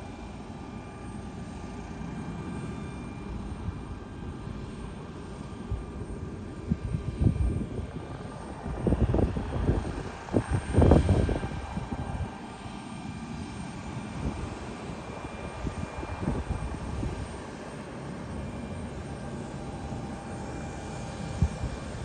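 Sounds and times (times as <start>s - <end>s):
distant jet engines humming: 0.0s - 22.0s
wind buffeting microphone: 5.6s - 18.1s, 19.3s - 22.0s.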